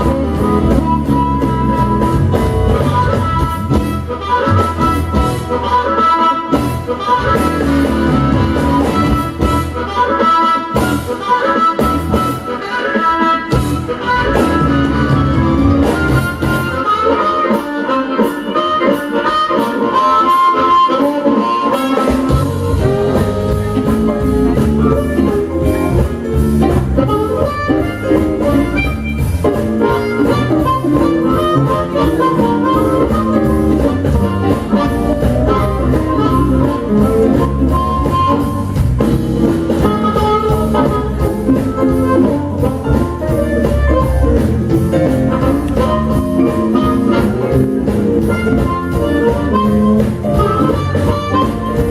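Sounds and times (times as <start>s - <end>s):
bass and drums: 0.0s - 51.9s
blues harmonica: 0.0s - 51.9s
electric guitar: 0.0s - 51.9s.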